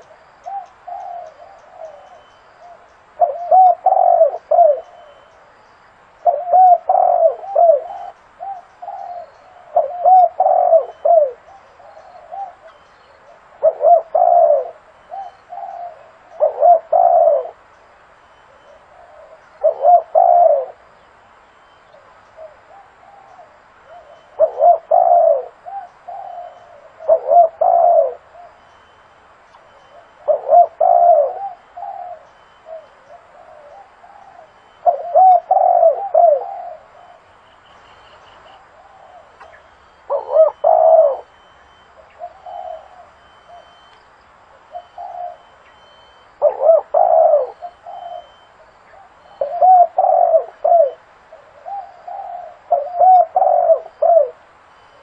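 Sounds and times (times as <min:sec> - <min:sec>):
dove cooing: 0:00.0 - 0:05.5, 0:06.2 - 0:17.7, 0:18.4 - 0:43.9, 0:44.5 - 0:55.0.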